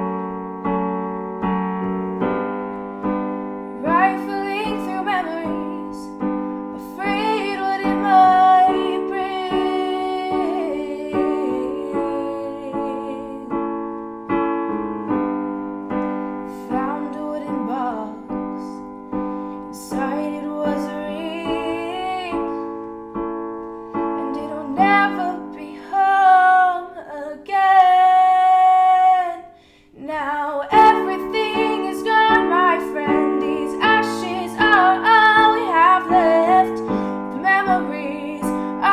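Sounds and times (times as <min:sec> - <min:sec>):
piano accompaniment: 0:00.0 - 0:38.9
woman singing: 0:03.7 - 0:13.8, 0:16.5 - 0:18.9, 0:19.7 - 0:22.7, 0:24.2 - 0:38.9.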